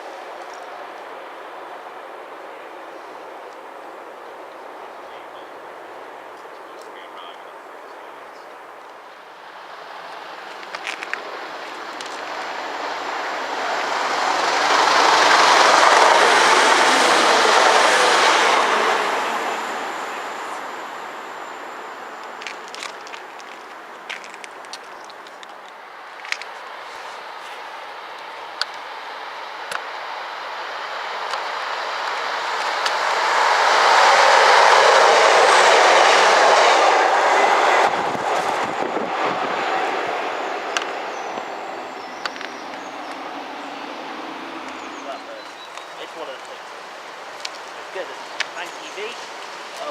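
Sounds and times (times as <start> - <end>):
train wheels on rails: 0.0 - 49.9.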